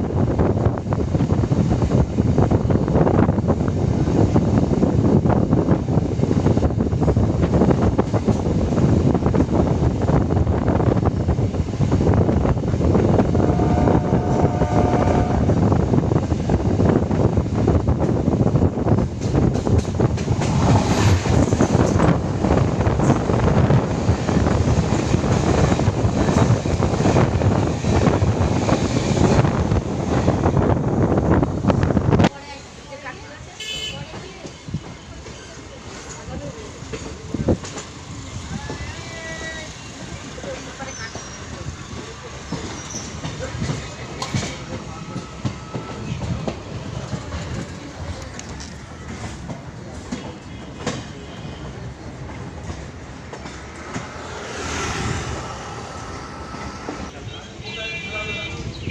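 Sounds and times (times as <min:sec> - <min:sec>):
wind buffeting microphone: 0:00.0 - 0:32.4, 0:34.0 - 0:57.2
train wheels rumbling on rails: 0:00.0 - 0:58.9
knocks and clicks of rails: 0:19.1 - 0:22.1
wheels clacking over rail joints: 0:34.0 - 0:55.8.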